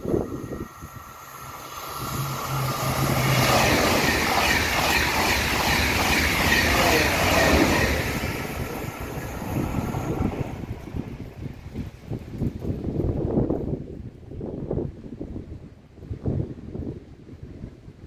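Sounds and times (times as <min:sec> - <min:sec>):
high-speed train rushing past: 0:00.0 - 0:13.8.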